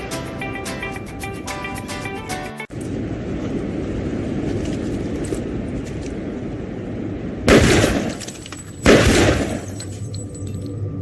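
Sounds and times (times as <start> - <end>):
gunfire burst: 7.5 - 8.2, 8.8 - 9.7.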